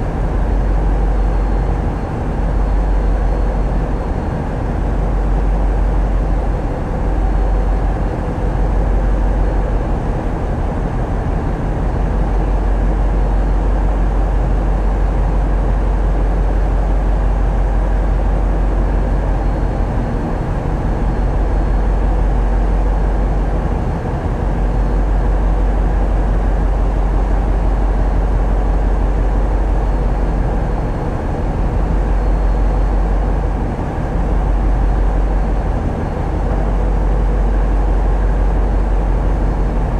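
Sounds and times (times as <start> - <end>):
diesel engine rumbling: 16.9 - 39.9.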